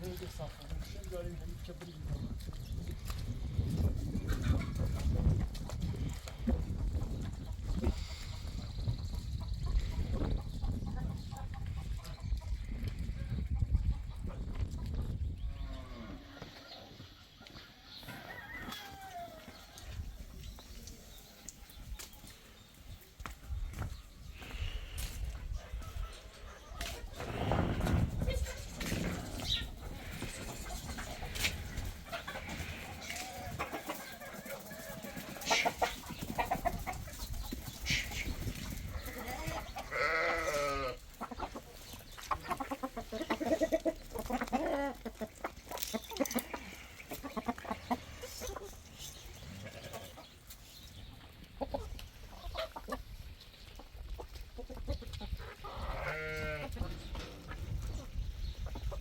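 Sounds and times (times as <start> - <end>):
goats bleating: 39.0 - 41.0, 55.8 - 56.8.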